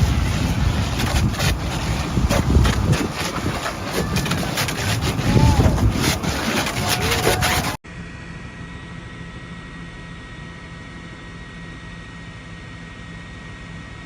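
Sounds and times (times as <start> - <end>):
steady rumbling noise: 0.0 - 7.8.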